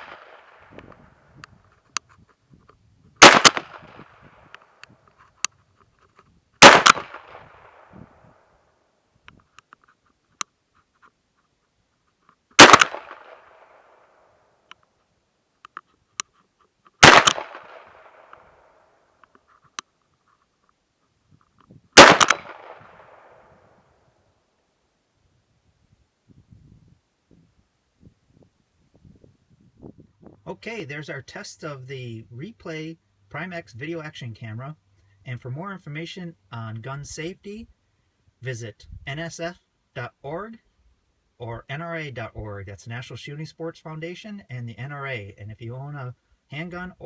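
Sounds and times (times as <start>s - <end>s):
revolver shots: 12.6s - 13.4s
faint small clicks: 15.6s - 17.0s.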